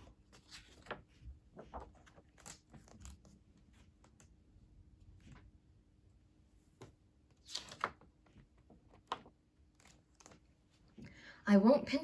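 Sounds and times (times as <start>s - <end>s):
paper pages turning: 0.0s - 4.4s, 6.8s - 10.6s.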